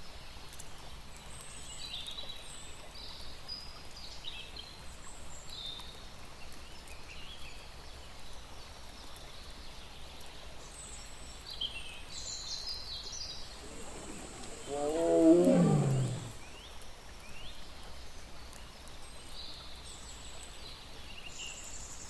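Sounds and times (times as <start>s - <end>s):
small birds chirping: 13.6s - 16.4s
tiger roar: 13.6s - 16.4s.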